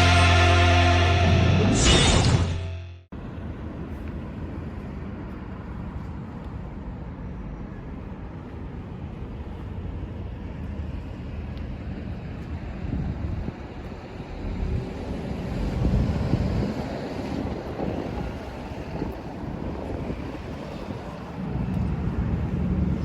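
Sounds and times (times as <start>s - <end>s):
rock music: 0.0s - 3.0s.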